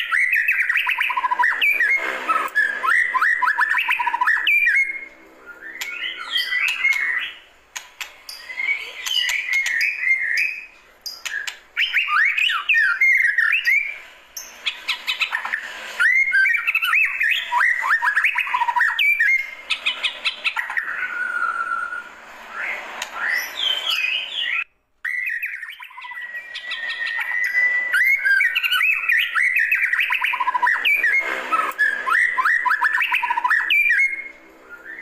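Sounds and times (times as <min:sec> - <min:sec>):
bird singing whistled phrases: 0:00.0 - 0:07.4, 0:08.4 - 0:14.0, 0:16.0 - 0:31.2, 0:31.8 - 0:35.0.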